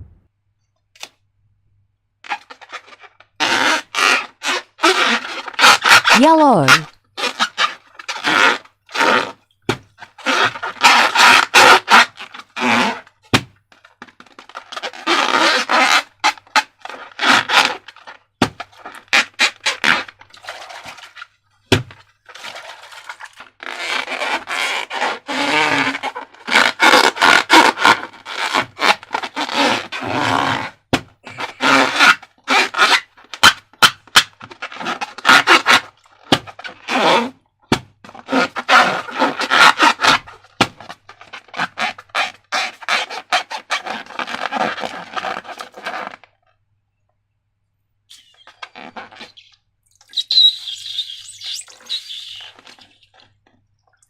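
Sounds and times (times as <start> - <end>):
slime squishing and scraping: 14.6 - 21.3, 22.2 - 33.0, 48.1 - 53.4.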